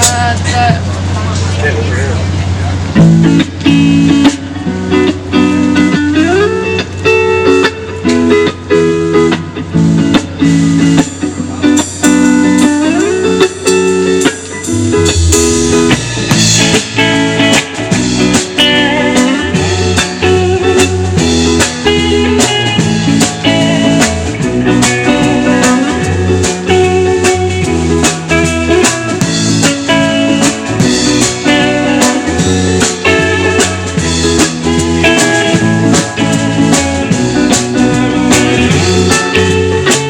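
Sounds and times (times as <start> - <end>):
electric guitar: 0.0 - 40.0
drum kit: 2.9 - 40.0
low bass notes: 13.0 - 40.0.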